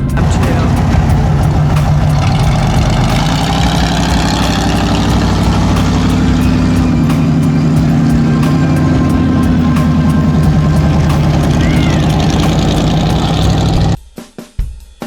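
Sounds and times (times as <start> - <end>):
truck engine running steadily: 0.0 - 14.0.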